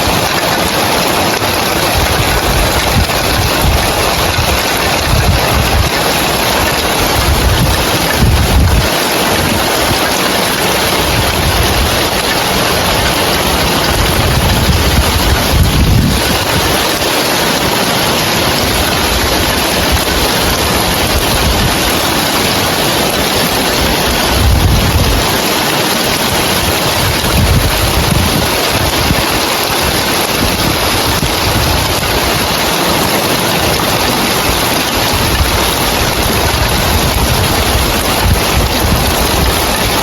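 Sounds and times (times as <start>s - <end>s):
heavy rain on roof tiles: 0.0s - 40.0s.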